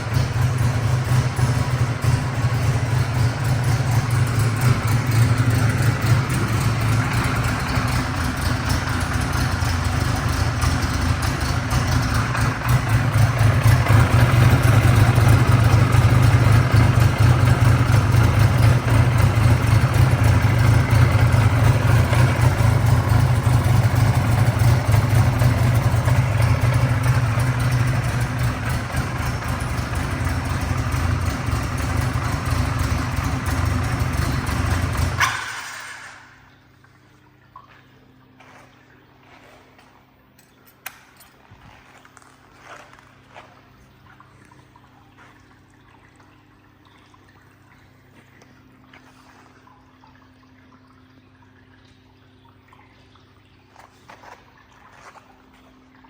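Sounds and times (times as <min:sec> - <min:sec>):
motorcycle engine idling: 0:00.0 - 0:36.5.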